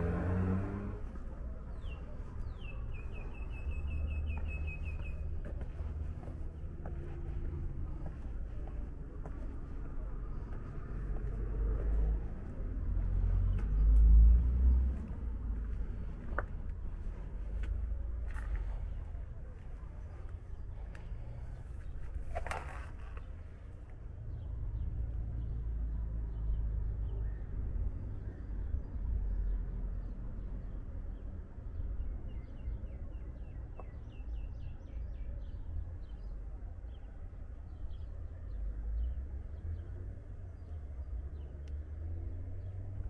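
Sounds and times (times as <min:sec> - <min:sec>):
low outdoor rumble: 0:00.0 - 0:43.0
small birds chirping: 0:01.4 - 0:23.7.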